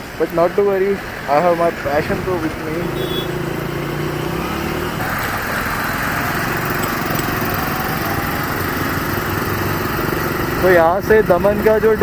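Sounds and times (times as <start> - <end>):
motorcycle engine running steadily: 1.4 - 12.0.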